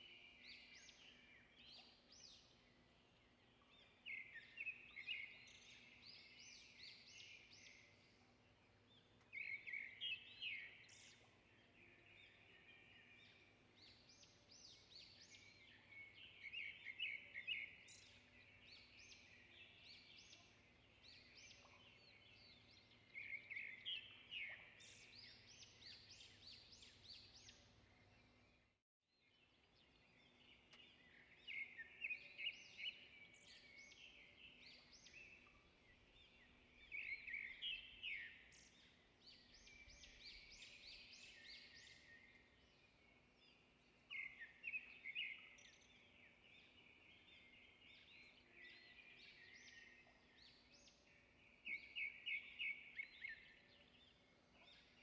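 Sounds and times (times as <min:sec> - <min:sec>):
bird chirping: 0:00.0 - 0:55.0.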